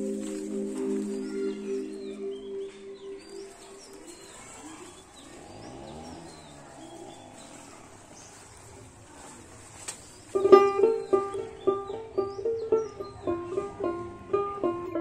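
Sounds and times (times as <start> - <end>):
low sound: 0.0 - 4.1
birds chirping faintly: 0.0 - 15.0.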